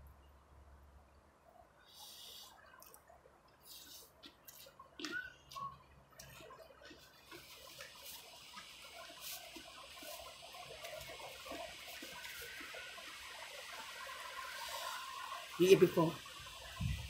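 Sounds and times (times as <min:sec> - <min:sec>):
steady outdoor hiss: 0:00.0 - 0:17.0
person chewing: 0:06.2 - 0:08.0.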